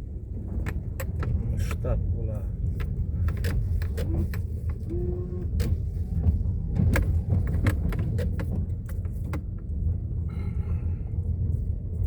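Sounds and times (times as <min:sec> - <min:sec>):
motor vehicle rumbling: 0:00.0 - 0:12.0
knocks and rattles: 0:05.6 - 0:09.7.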